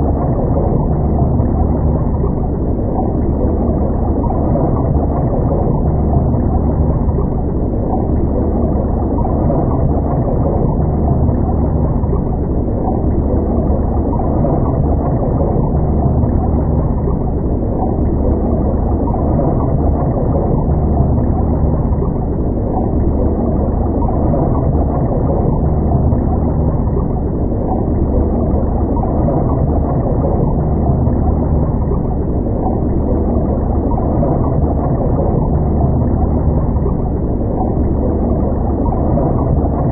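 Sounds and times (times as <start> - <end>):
deep hum: 0.0 - 39.9
muffled underwater rumble: 0.0 - 39.9.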